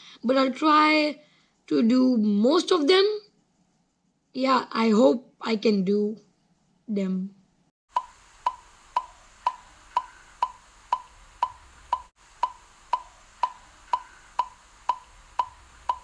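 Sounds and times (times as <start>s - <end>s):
wood-block-like ticking: 7.9s - 16.0s.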